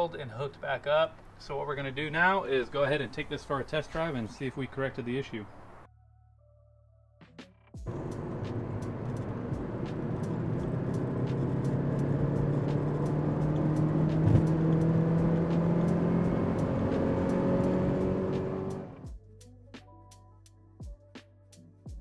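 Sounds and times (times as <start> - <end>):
turbo car engine revving: 7.8 - 19.1.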